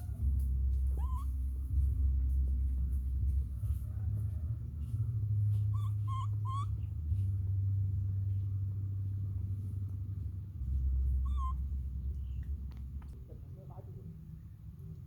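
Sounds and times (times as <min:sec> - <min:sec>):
steady low rumble: 0:00.0 - 0:15.0
baby monkey high calls: 0:00.8 - 0:01.4, 0:05.7 - 0:06.9, 0:11.2 - 0:11.7.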